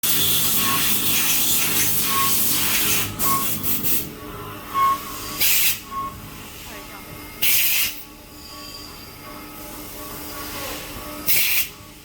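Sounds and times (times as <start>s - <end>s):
cnc machine spraying hiss: 0.1s - 4.1s, 5.0s - 6.8s, 7.4s - 8.1s, 9.8s - 12.0s.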